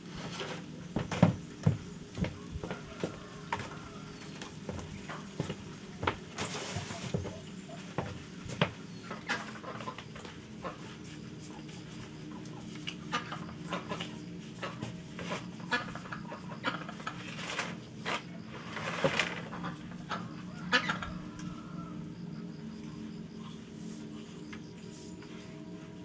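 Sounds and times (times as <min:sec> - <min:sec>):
steady low hum: 0:00.0 - 0:26.0
chickens clucking: 0:00.2 - 0:22.6.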